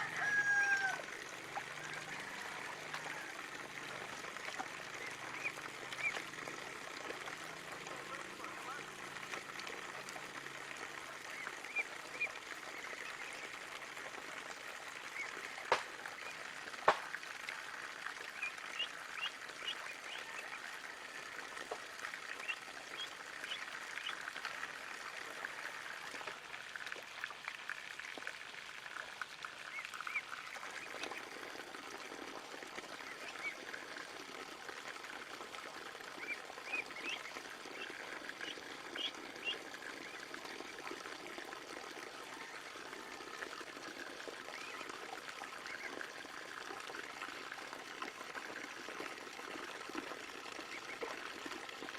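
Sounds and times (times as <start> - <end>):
faint water: 0.0 - 51.9
ducklings peeping: 38.5 - 40.2.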